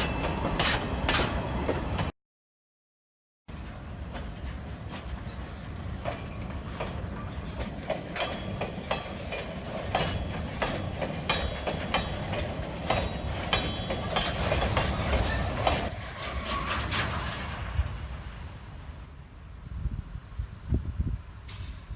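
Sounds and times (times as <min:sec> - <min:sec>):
freight train rumbling: 0:00.0 - 0:02.1, 0:03.5 - 0:21.9
wheels clacking over rail joints: 0:03.6 - 0:18.0.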